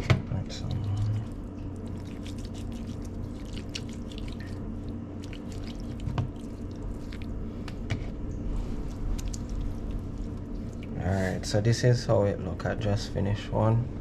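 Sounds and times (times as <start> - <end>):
steady low hum: 0.0 - 14.0
hands squishing wet paste: 0.6 - 7.8, 8.7 - 11.0.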